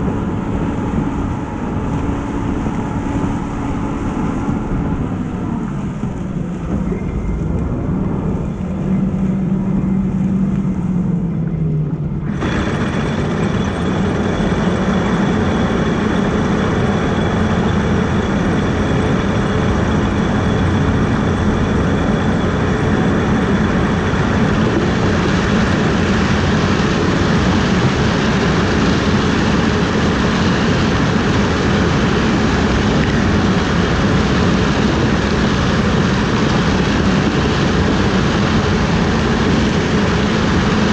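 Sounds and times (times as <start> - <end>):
heavy harvest machinery running: 0.0 - 40.9.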